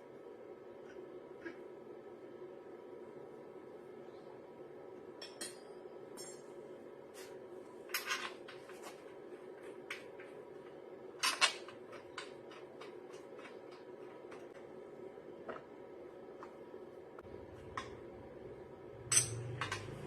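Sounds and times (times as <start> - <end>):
steady low hum: 0.0 - 20.0
metal tools clinking: 19.1 - 20.0.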